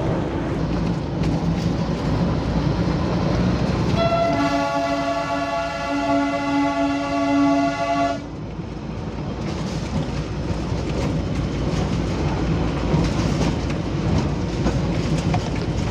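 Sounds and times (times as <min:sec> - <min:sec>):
train rumble: 0:00.0 - 0:15.9
wheels clicking over rail joints: 0:00.5 - 0:04.4, 0:08.3 - 0:15.9
train horn: 0:03.9 - 0:08.3.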